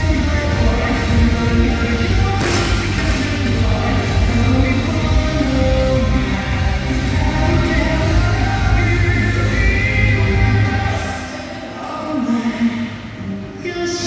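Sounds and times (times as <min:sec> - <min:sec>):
pop-rock music with singing: 0:00.0 - 0:14.0.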